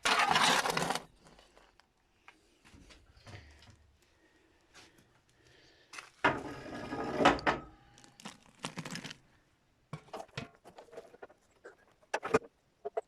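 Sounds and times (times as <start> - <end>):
hand tool scraping floor: 0.0 - 1.1, 6.3 - 7.4.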